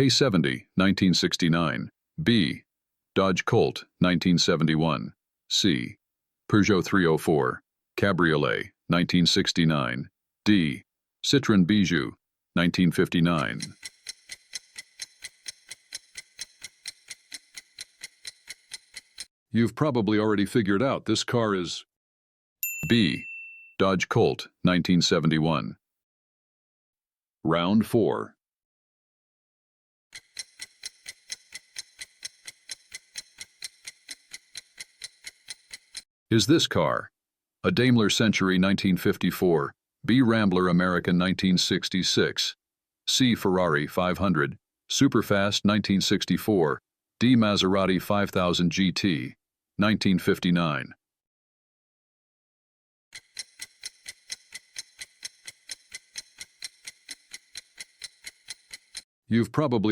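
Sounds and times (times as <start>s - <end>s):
clock ticking: 12.7s - 19.3s, 30.1s - 36.0s, 53.2s - 59.0s.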